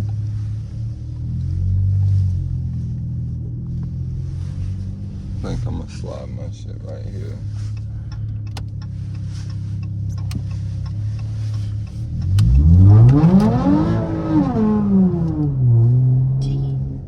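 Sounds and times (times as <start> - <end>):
car exhaust revving hard: 8.7 - 17.0.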